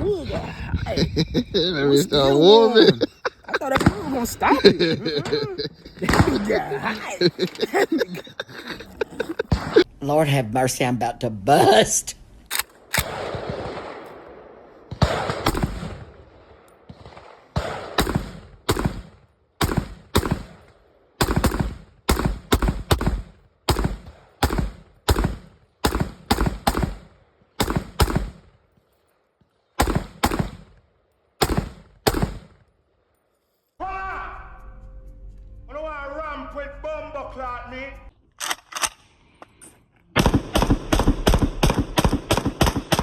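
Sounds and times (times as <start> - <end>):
rifle shots: 6.0 - 6.6, 12.5 - 28.6, 29.8 - 30.8, 31.4 - 32.6, 40.2 - 43.0.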